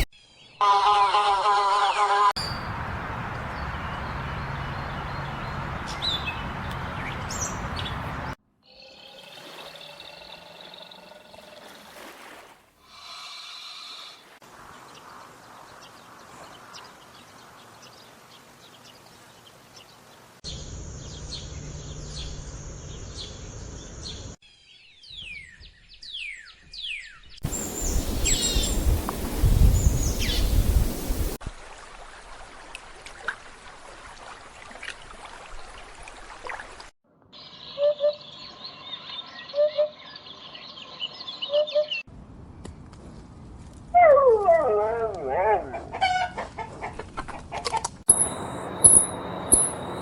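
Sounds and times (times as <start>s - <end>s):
low wind rumble: 2.4s - 8.4s, 27.4s - 31.4s
bird chirps and calls: 23.0s - 29.0s, 37.4s - 42.0s.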